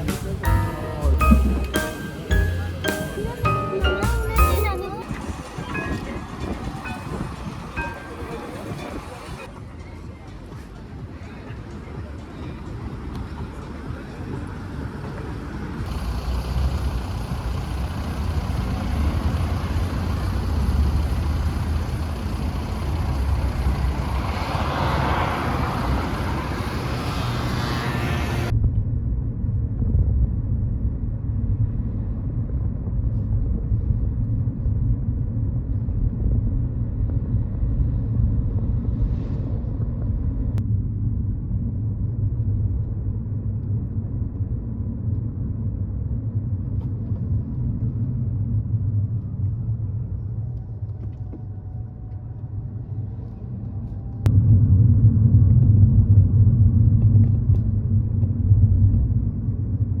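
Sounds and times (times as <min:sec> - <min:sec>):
low outdoor rumble: 0:00.0 - 1:00.0.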